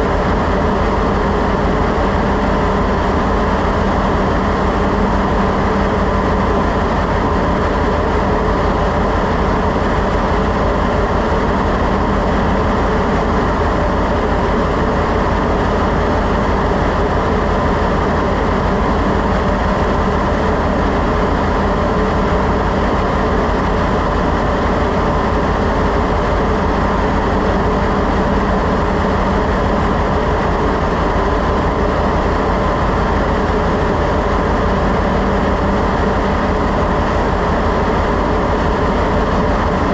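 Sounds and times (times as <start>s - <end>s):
engine-room machinery drone: 0.0s - 39.9s.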